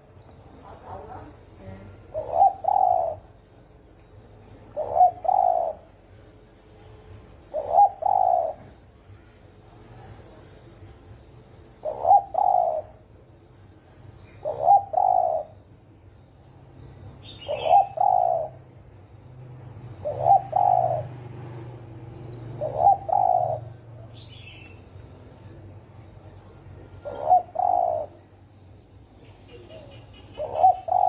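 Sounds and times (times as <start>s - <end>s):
dove cooing: 0.7s - 3.8s, 4.6s - 6.2s, 7.4s - 8.9s, 11.8s - 13.0s, 14.2s - 15.6s, 17.2s - 18.9s, 19.6s - 24.6s, 26.9s - 28.3s, 29.2s - 31.0s
small bird chirping: 4.0s - 6.6s, 14.2s - 18.8s, 19.7s - 25.1s, 29.1s - 31.0s.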